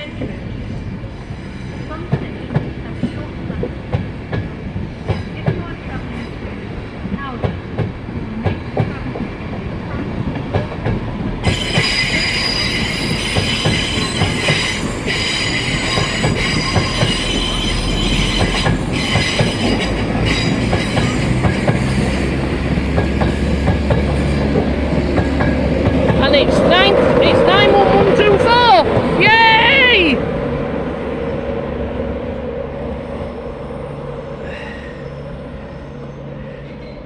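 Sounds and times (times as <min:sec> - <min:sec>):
train wheels clicking over rail joints: 0:10.3 - 0:26.6
high metallic squeal: 0:11.4 - 0:22.5.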